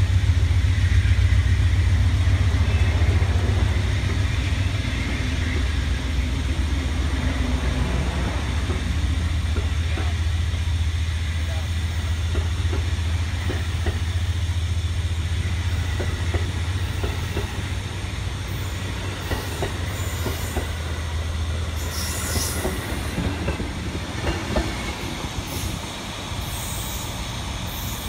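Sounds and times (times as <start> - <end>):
locomotive engine drone: 0.0 - 28.0
train wheels clicking over rail joints: 2.0 - 10.8, 11.5 - 28.0
high wheel squeals: 2.4 - 6.3, 15.6 - 23.6.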